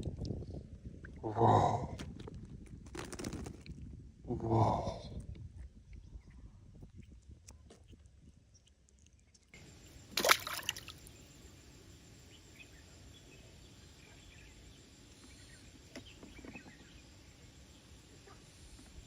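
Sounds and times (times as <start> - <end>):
stream water running: 9.6 - 11.5
loud water splash: 10.1 - 11.1.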